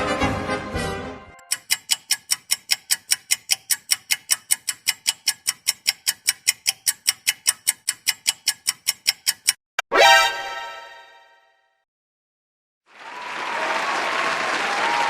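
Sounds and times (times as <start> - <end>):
fast even ticking: 1.4 - 9.6.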